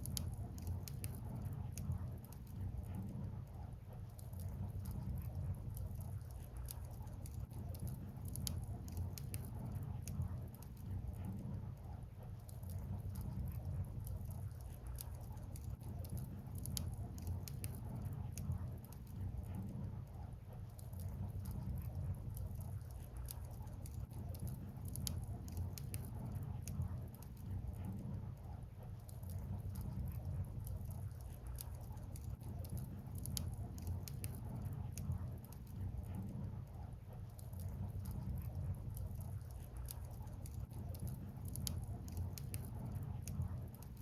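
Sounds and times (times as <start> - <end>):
low rumble of fire: 0.0 - 44.0
wood fire crackling and popping: 0.0 - 44.0.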